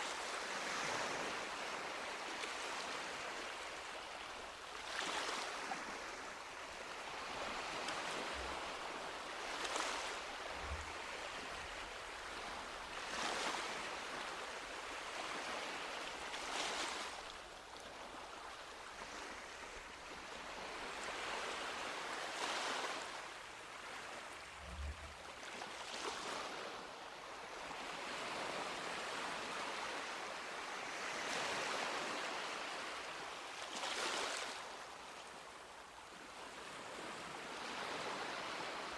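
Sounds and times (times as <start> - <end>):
sea waves breaking on beach: 4.7 - 18.2.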